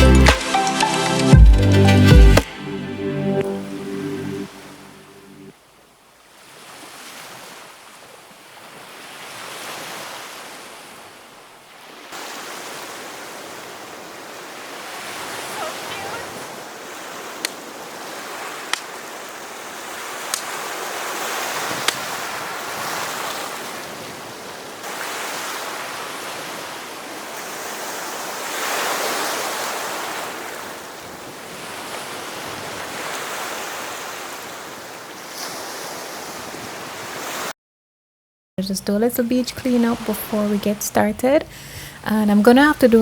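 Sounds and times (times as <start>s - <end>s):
surf breaking on a beach: 11.8s - 37.5s.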